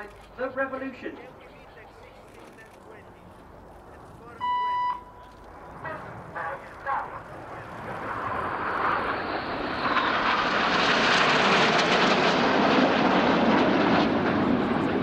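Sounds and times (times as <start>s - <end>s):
jets flying past: 5.5s - 15.0s.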